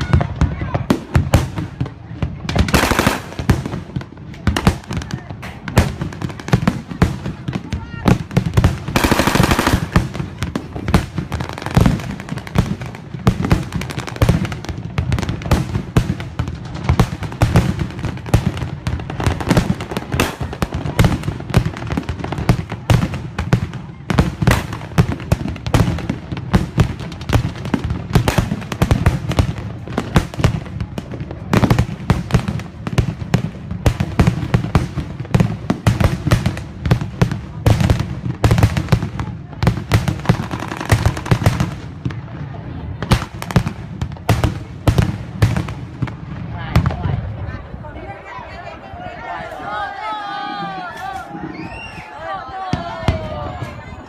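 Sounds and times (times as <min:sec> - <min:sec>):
rapid mock gunfire: 0:08.1 - 0:14.6.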